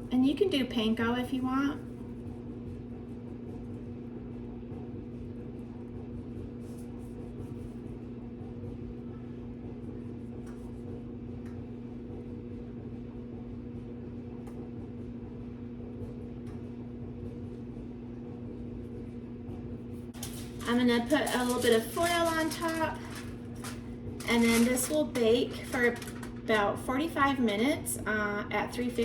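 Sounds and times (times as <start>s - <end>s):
clothes dryer humming: 0.0s - 29.0s.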